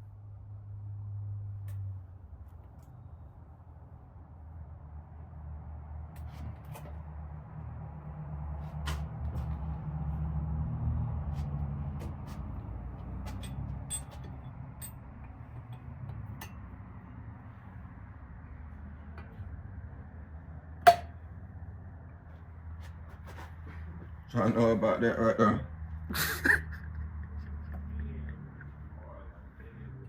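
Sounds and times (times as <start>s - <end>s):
small metal parts clinking: 13.3s - 15.1s.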